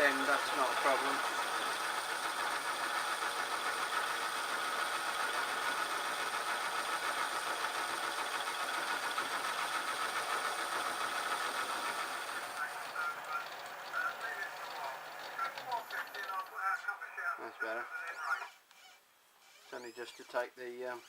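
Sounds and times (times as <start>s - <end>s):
metal lathe cutting: 0.0s - 16.5s.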